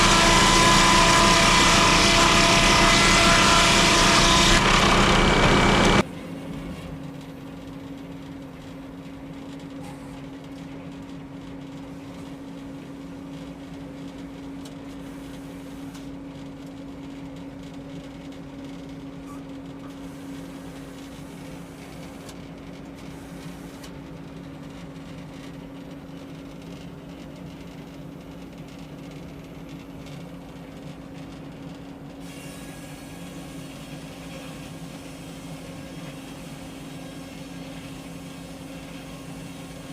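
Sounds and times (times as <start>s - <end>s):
saw cutting: 0.0s - 6.0s
sawmill engine humming: 0.0s - 6.0s.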